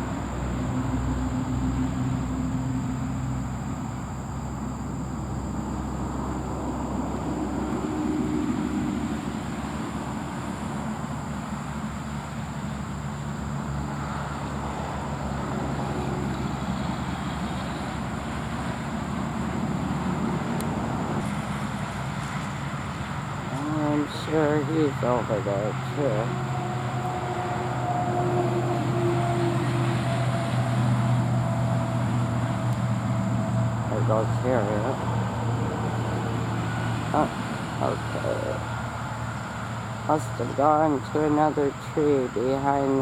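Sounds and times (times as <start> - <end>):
traffic rumble: 0.0 - 43.0
high continuous tone: 14.9 - 43.0.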